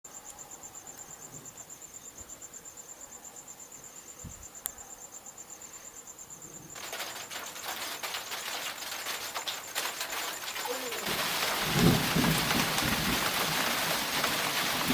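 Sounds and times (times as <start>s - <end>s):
cricket chirping: 0.0s - 14.9s
rain hissing with ticking drops: 5.3s - 14.9s.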